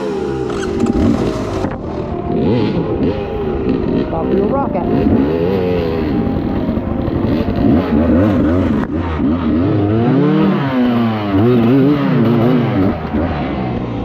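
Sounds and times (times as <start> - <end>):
off-road vehicle engines revving: 0.0 - 14.0.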